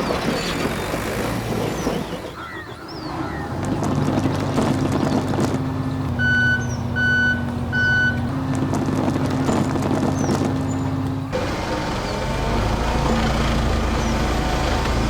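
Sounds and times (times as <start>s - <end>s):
reversing alarm beeps: 6.2s - 8.2s
small machine motor running: 11.3s - 15.0s.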